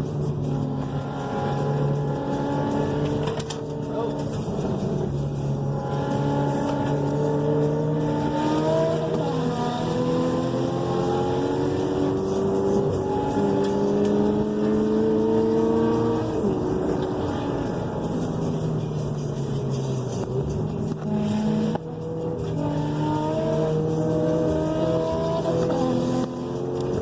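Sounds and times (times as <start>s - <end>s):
car engine at high revs: 0.0s - 27.0s.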